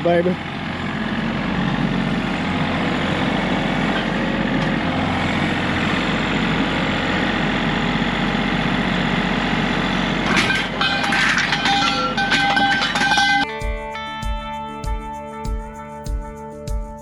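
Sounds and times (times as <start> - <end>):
large engine idling: 0.0 - 13.4.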